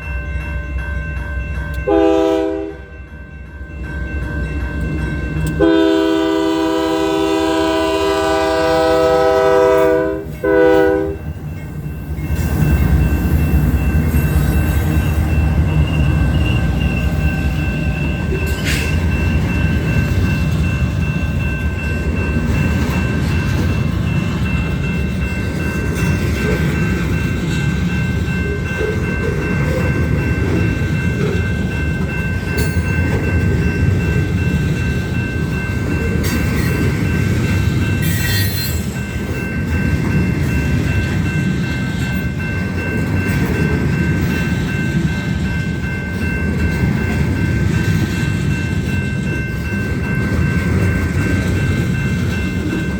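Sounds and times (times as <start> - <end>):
train clanking and clattering: 0.0 - 52.9
train wheels rumbling on rail: 0.0 - 52.9
high-pitched ringing tone: 10.6 - 52.9.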